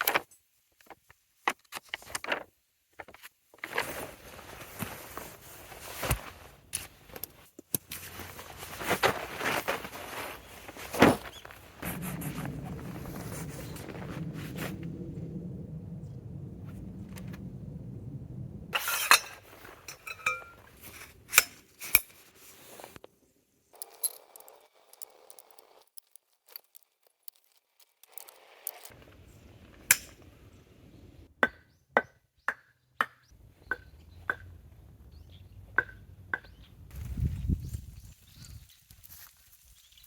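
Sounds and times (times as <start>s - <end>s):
metal clinks and knocks: 18.8s - 21.0s.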